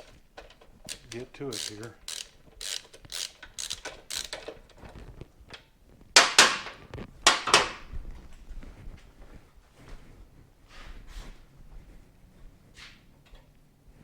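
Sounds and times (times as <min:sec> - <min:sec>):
ratchet strokes: 0:00.9 - 0:04.6
sharp knocks on metal: 0:06.2 - 0:07.8.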